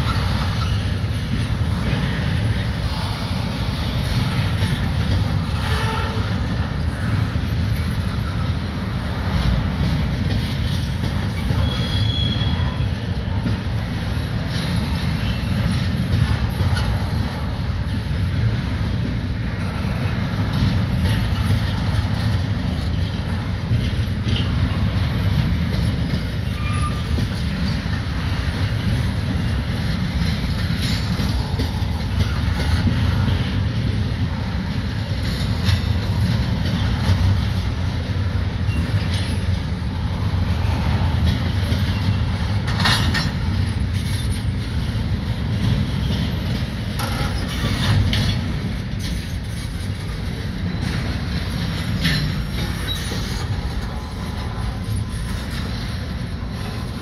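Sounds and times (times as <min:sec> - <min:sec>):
freight train wheels rumbling on rail: 0:00.0 - 0:57.0
train clicks and clanks: 0:00.0 - 0:57.0.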